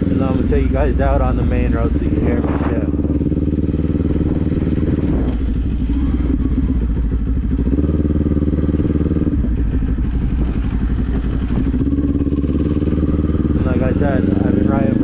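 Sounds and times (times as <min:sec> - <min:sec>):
motorcycle engine shifting gears: 0:00.0 - 0:15.0.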